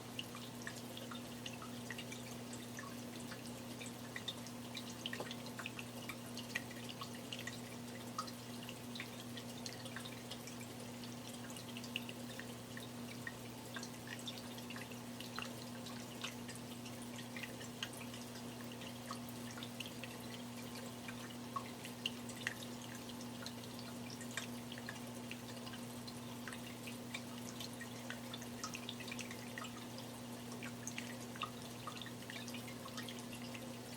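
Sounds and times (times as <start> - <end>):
fountain water bubbling and trickling: 0.0 - 33.9
low electric hum: 0.0 - 33.9
water drips into pool: 0.0 - 33.9.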